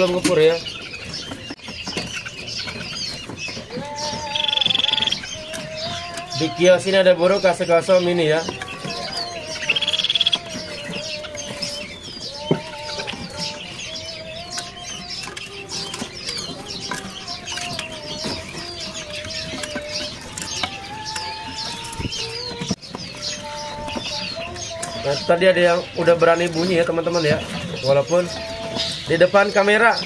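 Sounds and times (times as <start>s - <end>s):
high bird chirps: 0.0s - 30.0s.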